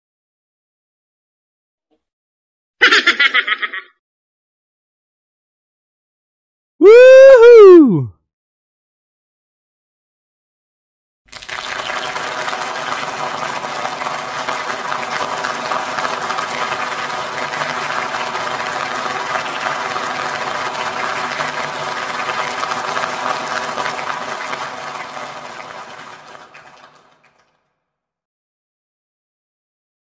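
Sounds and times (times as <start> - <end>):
crowd applause: 11.3 - 27.6.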